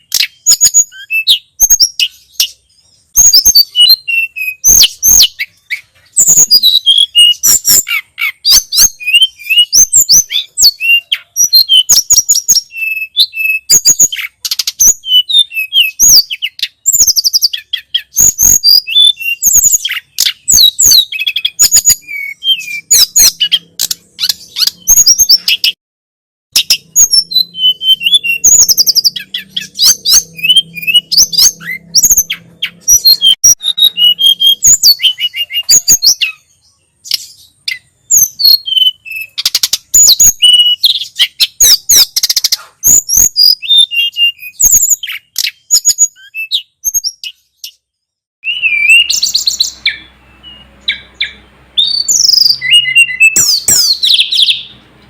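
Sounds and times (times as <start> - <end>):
bird chirping and whistling: 0.0 - 25.8, 26.5 - 47.8, 48.4 - 54.8.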